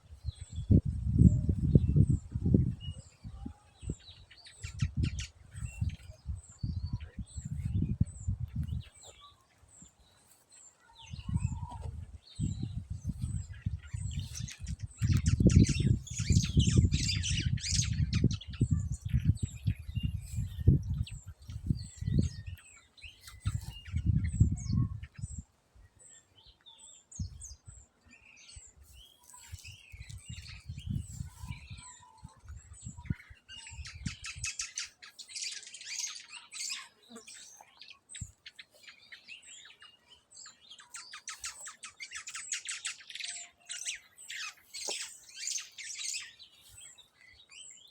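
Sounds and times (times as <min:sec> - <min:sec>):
small birds chirping: 0:00.0 - 0:47.9
low rumbling on microphone: 0:00.2 - 0:04.1, 0:04.7 - 0:08.9, 0:11.1 - 0:22.6.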